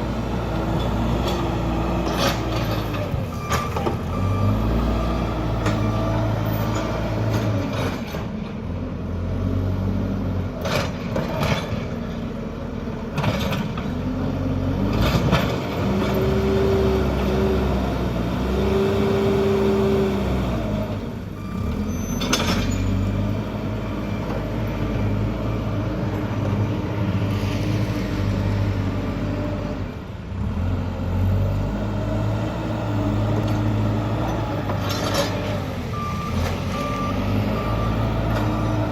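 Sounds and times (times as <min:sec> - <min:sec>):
diesel engine revving: 0:00.0 - 0:10.6, 0:12.8 - 0:38.9
faint reversing beeps: 0:02.7 - 0:07.6, 0:21.3 - 0:27.8, 0:34.2 - 0:38.9.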